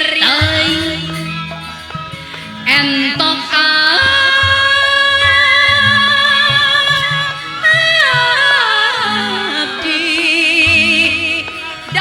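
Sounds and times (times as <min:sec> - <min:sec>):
woman singing: 0:00.0 - 0:01.6, 0:02.6 - 0:12.0.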